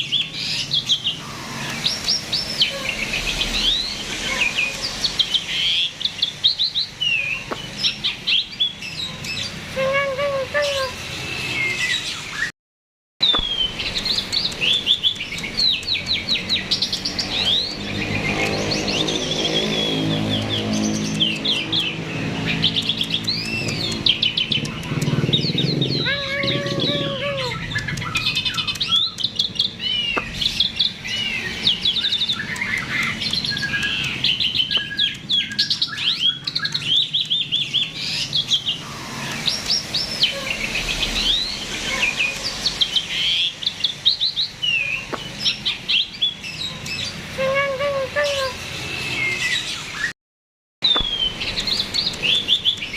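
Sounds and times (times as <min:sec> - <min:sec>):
starling singing chirps and whistles: 0:00.0 - 0:12.5, 0:13.2 - 0:50.1, 0:50.8 - 0:52.9
low bird warbling: 0:22.6 - 0:29.2.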